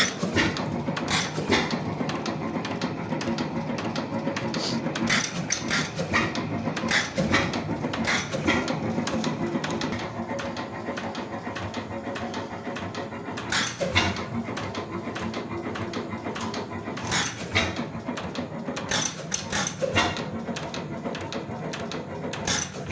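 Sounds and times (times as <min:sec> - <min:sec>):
oil engine clattering: 0:00.0 - 0:22.9.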